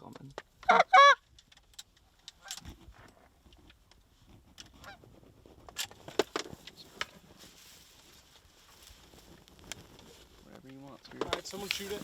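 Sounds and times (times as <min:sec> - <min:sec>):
goose honking: 0:00.6 - 0:01.2.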